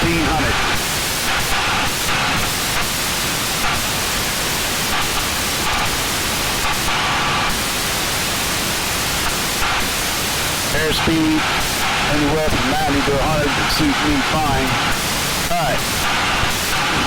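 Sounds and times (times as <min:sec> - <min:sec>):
airplane cabin engine drone: 0:10.8 - 0:15.0.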